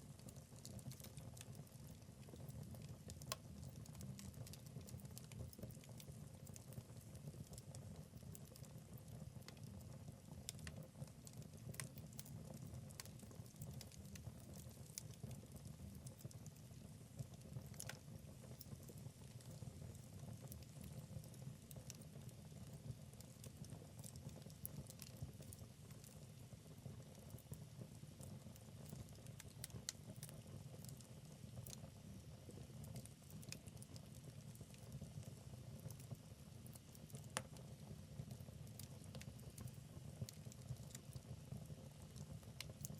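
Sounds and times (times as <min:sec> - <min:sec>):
low rumble of burning logs: 0:00.0 - 0:42.9
fire pops and snaps: 0:00.1 - 0:31.9, 0:32.5 - 0:41.3, 0:42.0 - 0:42.9.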